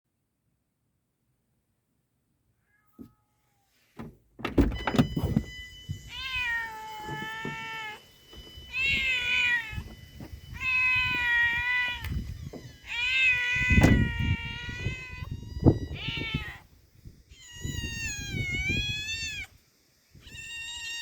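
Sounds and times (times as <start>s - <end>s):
cat meowing: 2.6s - 3.7s, 6.1s - 8.1s, 8.7s - 9.9s, 10.6s - 16.7s, 17.3s - 19.5s, 20.2s - 21.0s
knocks and thumps: 4.0s - 5.5s.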